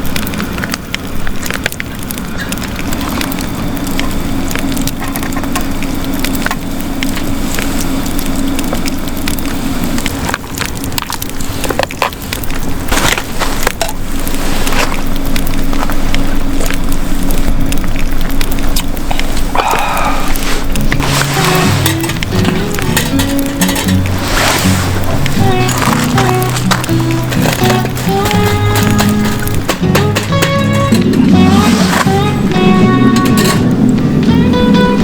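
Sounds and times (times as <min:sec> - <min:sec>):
wood crackling and snapping: 0:00.0 - 0:34.4
low hum: 0:13.7 - 0:35.0.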